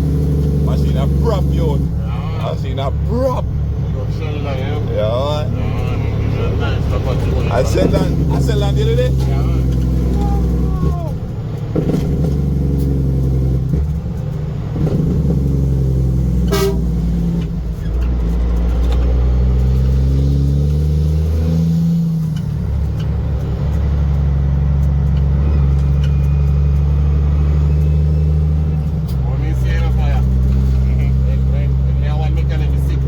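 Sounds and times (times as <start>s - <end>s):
truck engine revving: 0.0s - 33.0s
short horn toot: 16.4s - 17.0s.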